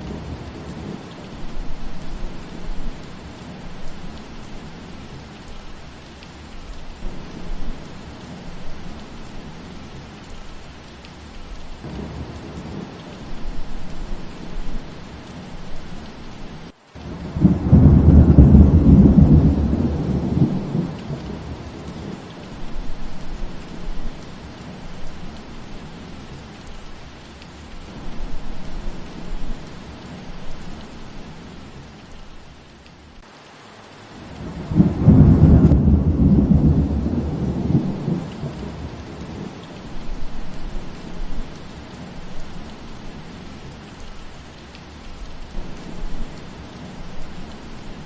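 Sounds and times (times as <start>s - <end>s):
steady rain: 0.0s - 48.0s
thunder rumbling: 11.8s - 26.4s, 34.2s - 43.8s.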